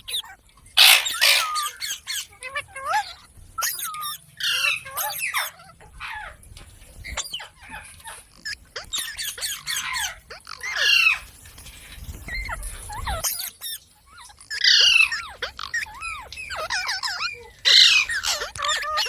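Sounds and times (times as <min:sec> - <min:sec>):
parrot squawking: 0:00.8 - 0:02.0.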